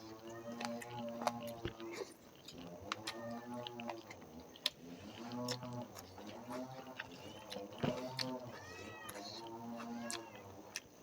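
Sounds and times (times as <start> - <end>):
chewing clicks: 0.1 - 11.0
cat meowing: 8.5 - 10.5.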